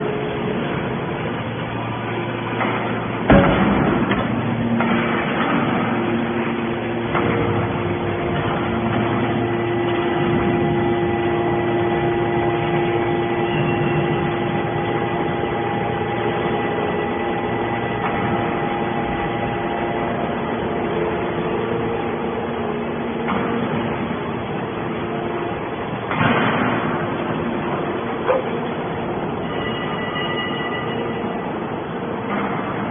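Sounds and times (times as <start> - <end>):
baler machine whine: 0.0 - 26.2
loud metal clank: 2.6 - 6.3, 26.1 - 27.2.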